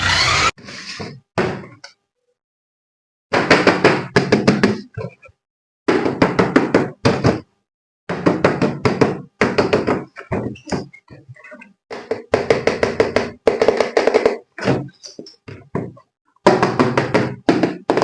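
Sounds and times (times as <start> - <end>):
rapid knocking and tapping: 8.1 - 10.9.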